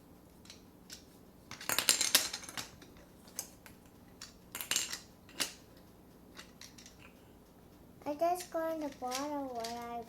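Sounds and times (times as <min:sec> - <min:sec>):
plastic toy parts clicking: 0:08.4 - 0:10.0.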